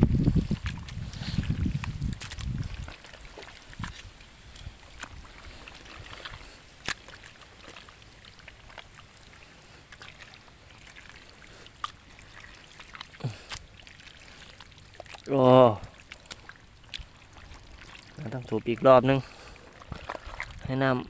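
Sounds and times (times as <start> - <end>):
shallow water trickling: 0.0 - 21.0
small water splashes: 0.0 - 21.0.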